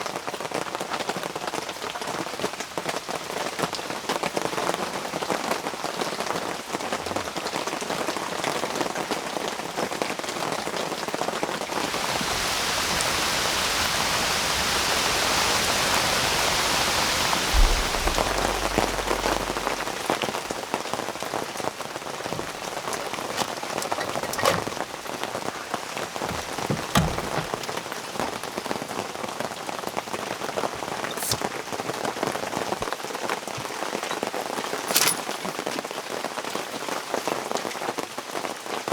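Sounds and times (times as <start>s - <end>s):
rain falling: 0.0s - 38.9s
dull low thump: 17.5s - 20.5s, 26.3s - 27.8s.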